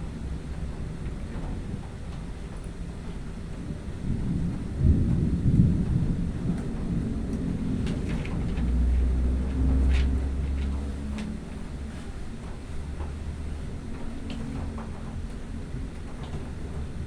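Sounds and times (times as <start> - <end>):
thunder rumbling: 0.0 - 17.0.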